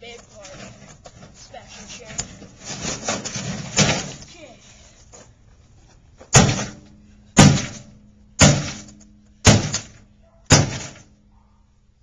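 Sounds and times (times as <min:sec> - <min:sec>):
microwave oven being smashed: 0:06.3 - 0:06.8, 0:07.4 - 0:11.1.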